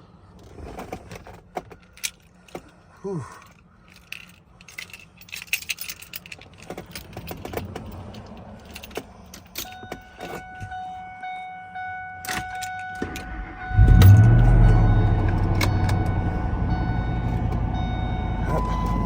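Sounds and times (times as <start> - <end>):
keys jingling: 3.3 - 10.5
electronic warning tone: 10.4 - 19.0
engine cranking and starting: 13.0 - 19.0.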